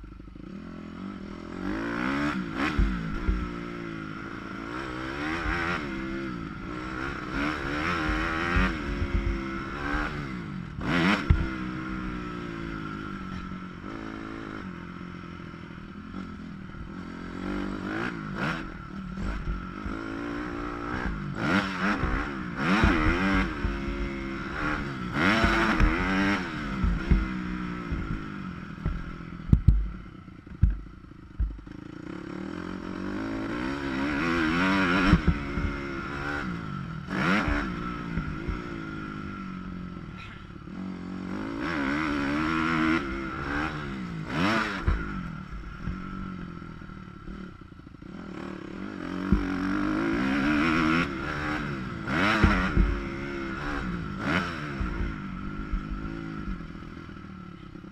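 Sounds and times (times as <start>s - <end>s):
dirt bike engine revving: 0.0s - 57.9s
bike knocks and clatter: 26.8s - 29.9s, 30.5s - 31.6s, 52.3s - 53.0s.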